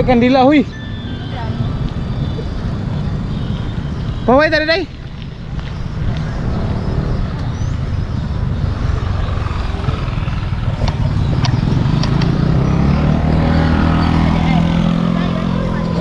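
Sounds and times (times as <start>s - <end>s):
road noise: 0.0s - 16.0s
sharp clicks: 10.8s - 12.4s.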